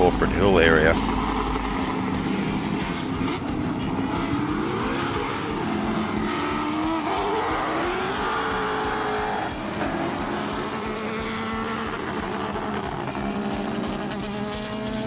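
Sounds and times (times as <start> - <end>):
race car engines accelerating: 0.0 - 15.0.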